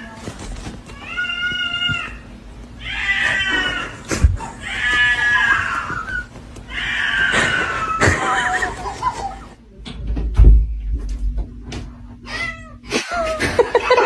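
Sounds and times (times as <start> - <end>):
cat meowing: 0.9 - 4.0, 4.6 - 8.1.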